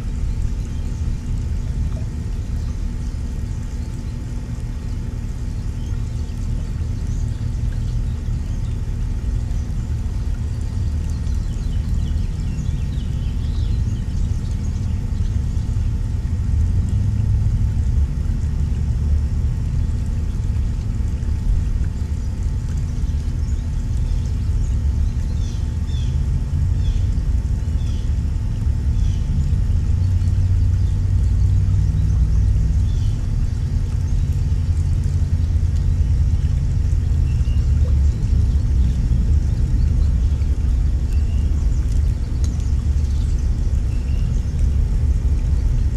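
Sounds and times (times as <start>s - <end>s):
faint hum: 0.0s - 45.9s
songbirds chirping: 0.1s - 16.2s, 21.6s - 45.9s
low rumble: 28.2s - 45.9s.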